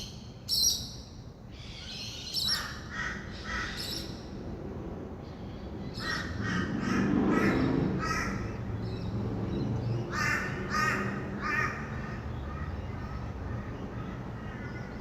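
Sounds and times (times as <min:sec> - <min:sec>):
distant traffic rumble: 0:00.0 - 0:15.0
parrots screeching: 0:10.1 - 0:12.2.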